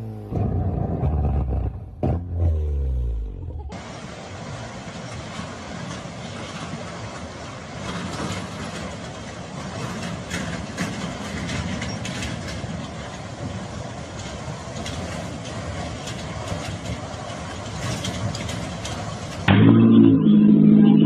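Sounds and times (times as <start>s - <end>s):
vehicle engine and road noise: 0.0s - 21.0s
loud engine running: 19.5s - 21.0s.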